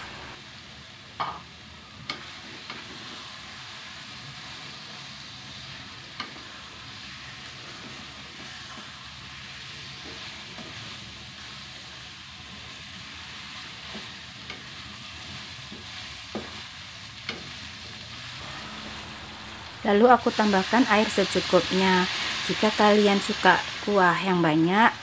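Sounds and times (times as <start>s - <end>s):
food sizzling in a wok: 0.0s - 25.0s
spatula tapping the wok: 1.2s - 1.4s.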